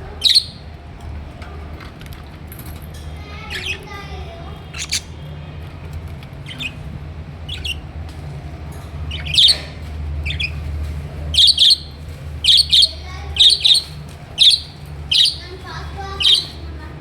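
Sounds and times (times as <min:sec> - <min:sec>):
budgerigars squawking: 0:00.2 - 0:00.6, 0:04.7 - 0:05.2, 0:06.5 - 0:06.8, 0:07.5 - 0:07.9, 0:09.1 - 0:10.6, 0:11.3 - 0:16.7.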